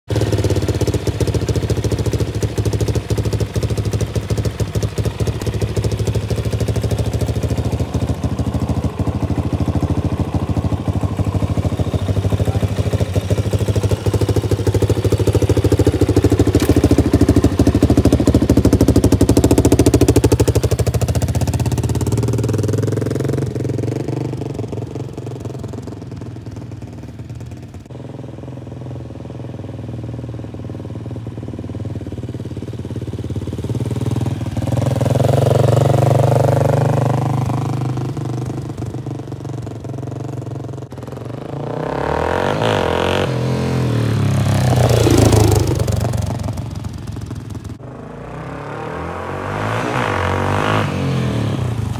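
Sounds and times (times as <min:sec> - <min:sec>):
motorcycle engine idling and revving: 0:00.0 - 0:51.9.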